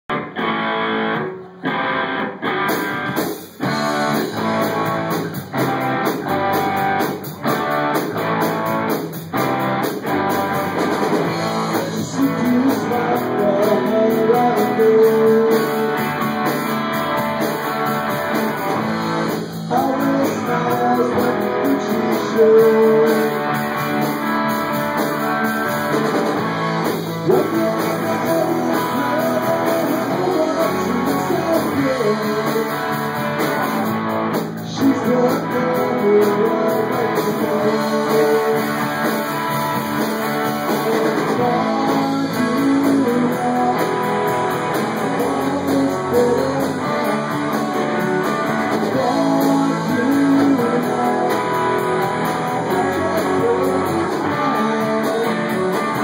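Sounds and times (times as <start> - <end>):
live band guitar instrumental: 0.0 - 56.0.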